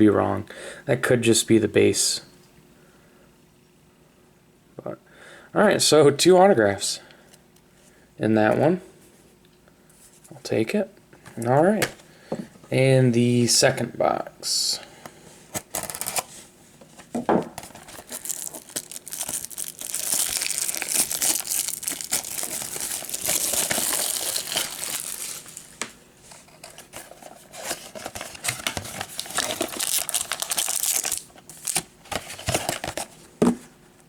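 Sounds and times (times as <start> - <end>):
plastic wrapping crinkling and tearing: 15.6 - 16.3, 17.6 - 33.1.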